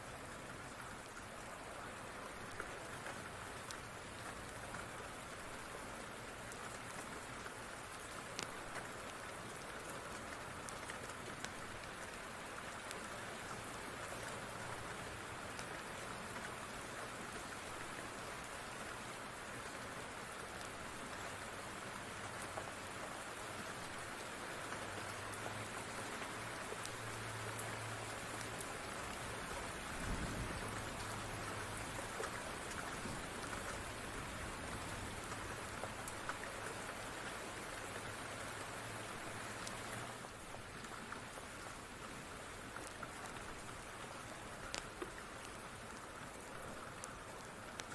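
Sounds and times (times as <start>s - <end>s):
steady rain: 0.0s - 47.9s
wood fire crackling: 8.3s - 9.2s, 42.7s - 47.9s.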